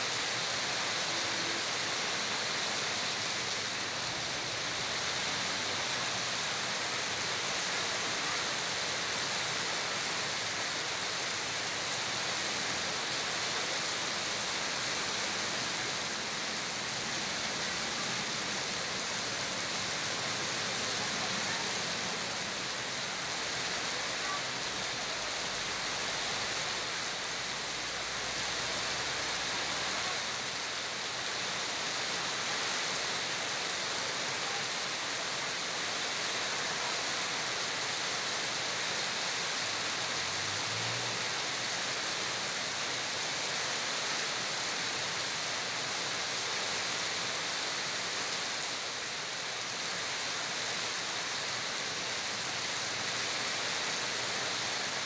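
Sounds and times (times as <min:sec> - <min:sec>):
heavy rain on street: 0:00.0 - 0:55.0
vehicle driving through floodwater: 0:02.6 - 0:30.6, 0:38.5 - 0:45.9.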